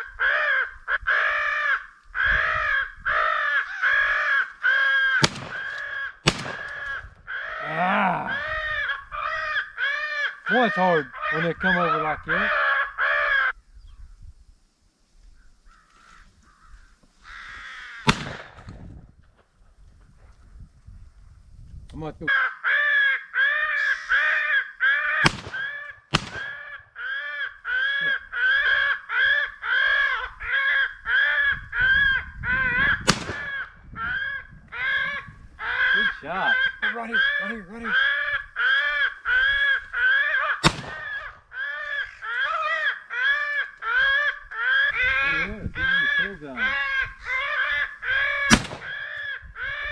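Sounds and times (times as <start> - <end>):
crows cawing: 0.0 - 13.6, 15.7 - 18.6, 22.3 - 49.9
loud gunshot: 5.2 - 6.8, 18.1 - 18.7, 25.2 - 26.6, 33.1 - 33.6, 40.6 - 41.2, 48.5 - 49.0
shotgun shot: 5.2 - 6.8, 18.1 - 18.8, 25.2 - 26.6, 33.1 - 33.6, 40.6 - 41.3, 48.5 - 49.1.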